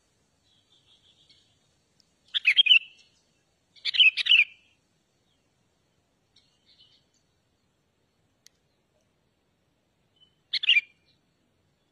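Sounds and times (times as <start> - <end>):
faint bird chirps: 0.0 - 9.1, 10.0 - 11.9
bird singing bubbly phrases: 2.3 - 3.0, 3.8 - 4.8, 10.2 - 11.1.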